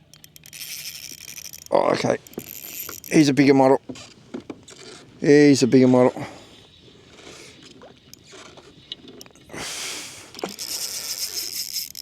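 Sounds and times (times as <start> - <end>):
fishing reel whirring: 0.0 - 3.3, 10.3 - 12.0.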